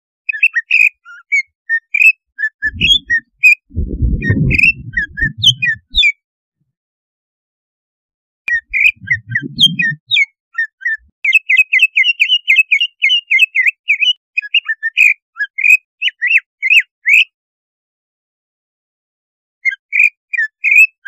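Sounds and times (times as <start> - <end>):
bird whistled chirps: 2.4 - 3.3, 4.2 - 6.1, 8.5 - 11.0
low rough sound: 2.6 - 6.0, 8.7 - 10.2.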